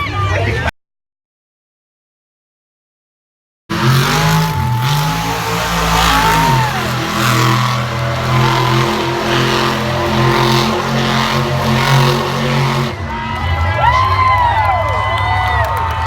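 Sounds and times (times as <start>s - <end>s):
truck engine running loud: 3.7s - 15.1s.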